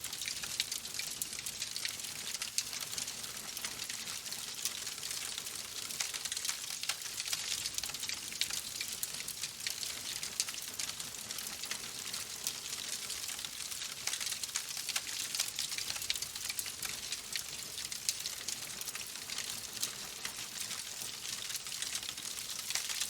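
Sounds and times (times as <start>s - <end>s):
wood fire crackling: 0.1s - 23.0s.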